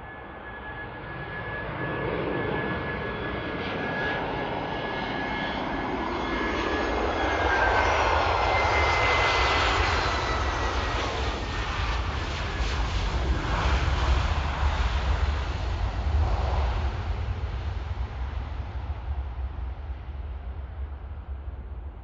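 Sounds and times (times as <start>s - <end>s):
jet airliner engines: 0.0s - 22.0s
rushing noise with low rumble: 11.9s - 22.0s.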